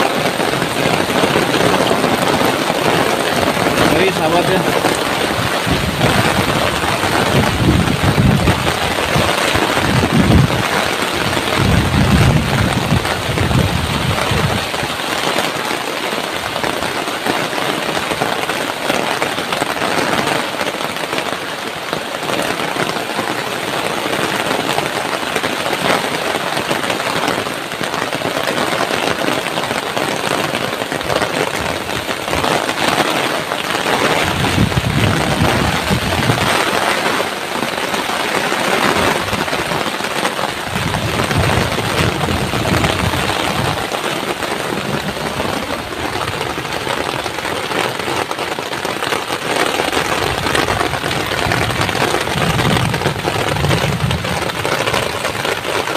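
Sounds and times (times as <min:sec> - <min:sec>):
heavy rain pouring: 0:00.0 - 0:55.9
wind gusts buffeting microphone: 0:00.1 - 0:15.1, 0:33.8 - 0:36.9, 0:38.6 - 0:47.6, 0:49.9 - 0:55.9.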